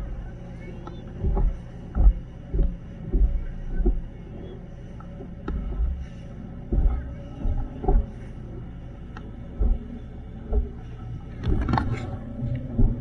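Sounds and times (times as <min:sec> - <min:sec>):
boat motor humming: 0:00.0 - 0:13.0
heavy low thumps: 0:01.1 - 0:08.6, 0:09.4 - 0:11.8.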